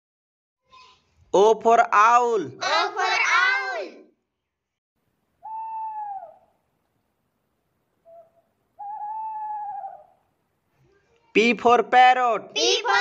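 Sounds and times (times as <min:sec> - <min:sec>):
owl hooting: 0:05.4 - 0:06.6, 0:08.0 - 0:10.3.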